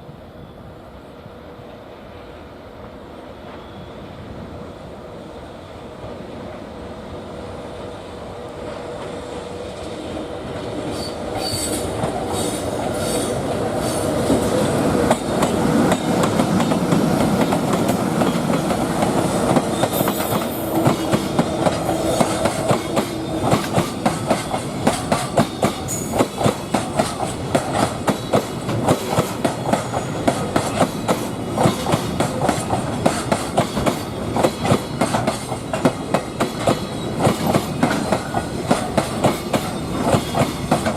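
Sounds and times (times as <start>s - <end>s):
freight train passing: 0.0s - 40.9s
wheels clacking over rail joints: 14.3s - 40.9s.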